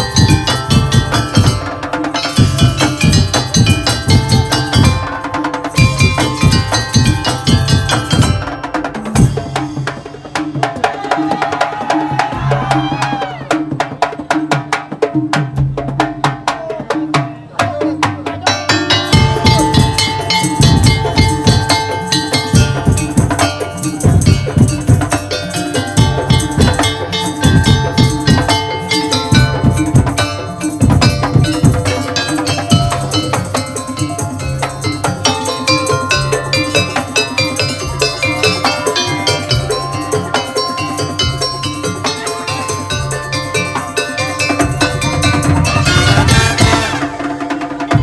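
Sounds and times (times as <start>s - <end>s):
wooden slit-drum percussion music: 0.0s - 48.0s
held melody note: 25.6s - 47.6s.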